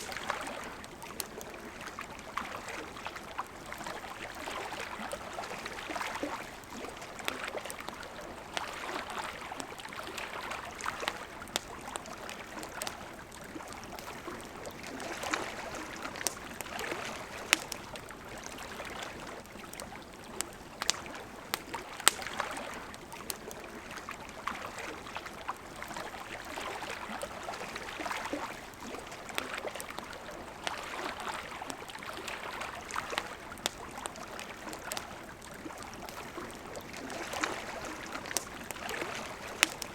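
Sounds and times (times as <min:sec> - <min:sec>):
fire popping: 0:00.0 - 0:01.7, 0:10.8 - 0:23.8, 0:33.0 - 0:39.9
campfire crackling: 0:00.0 - 0:39.9.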